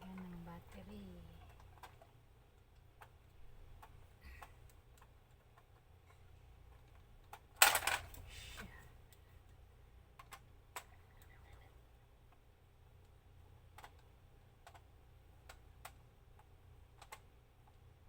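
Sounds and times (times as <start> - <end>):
plastic toy clicks and taps: 13.0 - 17.8.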